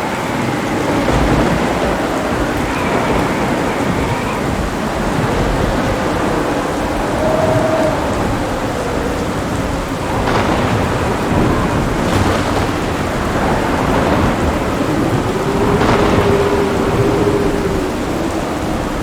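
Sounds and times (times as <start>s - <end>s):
heavy rain: 0.0s - 19.0s
sharp thunder cracks: 0.0s - 19.0s
thunder rumbling: 0.0s - 19.0s.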